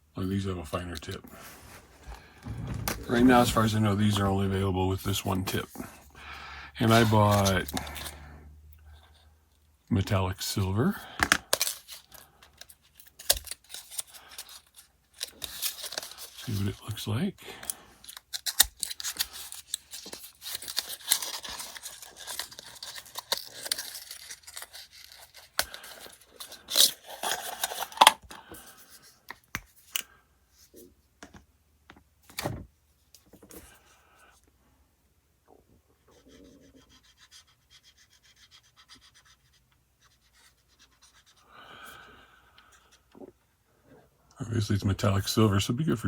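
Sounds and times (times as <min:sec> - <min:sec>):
marker scratching on plastic: 0:36.0 - 0:41.4.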